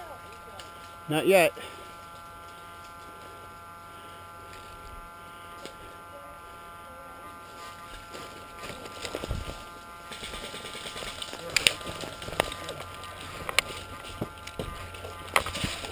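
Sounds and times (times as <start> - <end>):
faint electrical buzz: 0.0 - 15.9.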